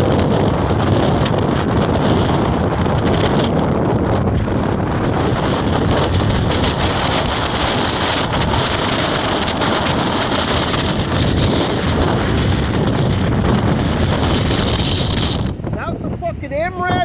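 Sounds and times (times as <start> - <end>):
strong wind on microphone: 0.0 - 17.0.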